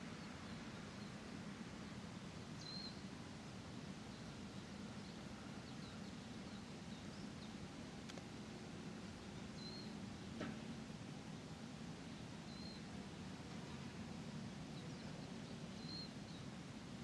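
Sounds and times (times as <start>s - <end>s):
distant traffic hum: 0.0s - 17.0s
small birds chirping: 2.2s - 3.1s, 4.1s - 7.6s, 9.1s - 10.3s, 12.1s - 13.0s, 14.6s - 16.6s
faint clicks: 8.0s - 8.3s.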